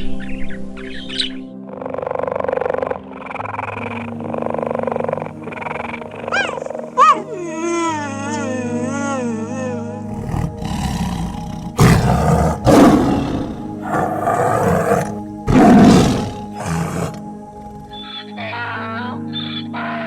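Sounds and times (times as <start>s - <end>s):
soft background music: 0.0s - 20.0s
big cat roaring: 10.0s - 18.0s.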